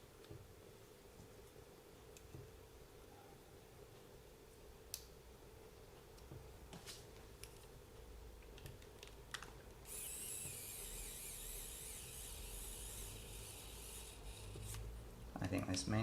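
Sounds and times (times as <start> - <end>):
small electric motor whining: 9.9 - 14.9.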